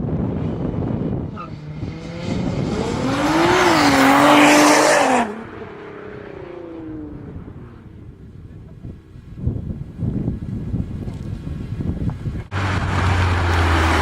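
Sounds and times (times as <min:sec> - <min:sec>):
race car passing by: 0:01.2 - 0:08.1.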